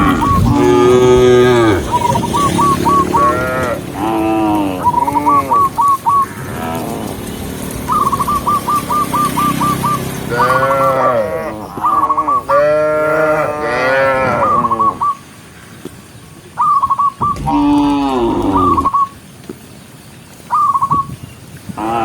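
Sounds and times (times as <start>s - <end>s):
cattle mooing: 0.0s - 5.8s, 6.4s - 7.3s, 10.3s - 14.8s, 17.3s - 19.0s, 21.8s - 22.0s.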